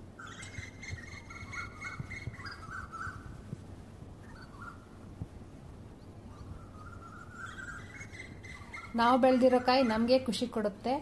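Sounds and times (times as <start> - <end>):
bird chirping: 0.1 - 3.5, 4.2 - 5.1, 5.9 - 10.3.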